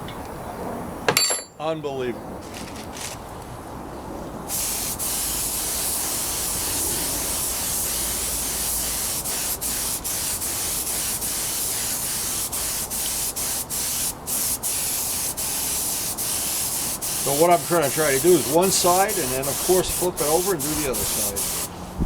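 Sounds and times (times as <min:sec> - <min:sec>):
paint spray gun hissing: 0:04.5 - 0:21.7.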